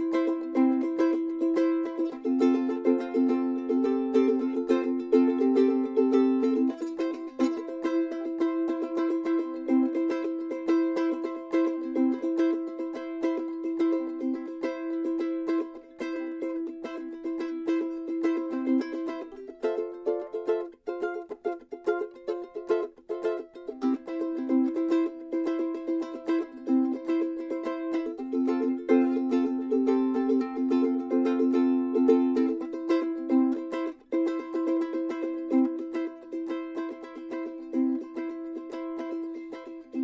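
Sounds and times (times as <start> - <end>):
ukulele strumming: 0.0 - 40.0.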